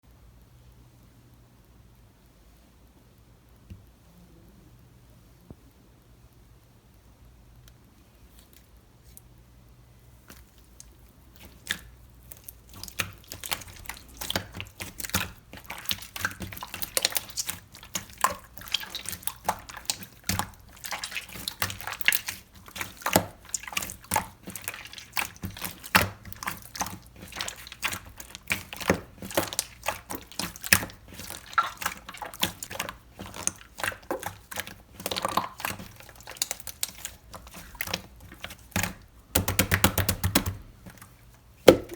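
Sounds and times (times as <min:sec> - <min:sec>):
slime squelching by hand: 0:10.1 - 0:41.9.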